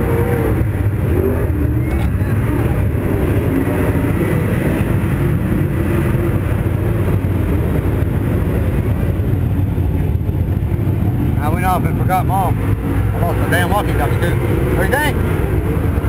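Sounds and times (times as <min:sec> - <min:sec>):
race car engine idling: 0:00.0 - 0:16.0.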